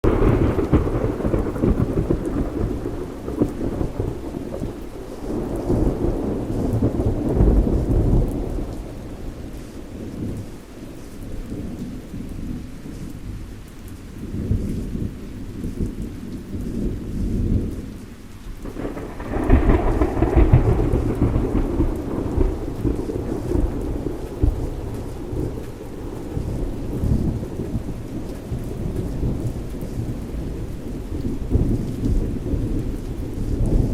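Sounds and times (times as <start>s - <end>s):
loud thunder peal: 0.0s - 10.4s, 18.6s - 33.9s
rolling thunder: 0.0s - 33.9s
steady rain: 0.0s - 33.9s.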